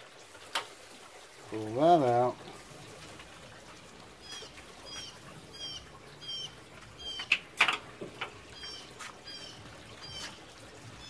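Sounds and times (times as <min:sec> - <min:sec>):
bird chirping: 0:04.2 - 0:07.4, 0:08.5 - 0:10.4.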